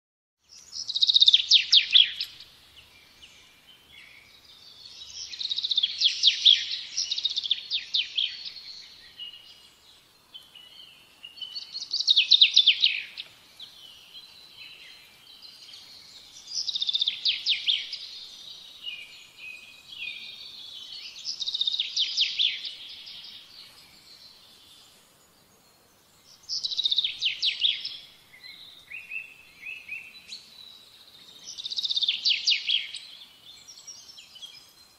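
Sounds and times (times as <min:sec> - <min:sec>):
songbird trilling song: 0:00.4 - 0:34.9.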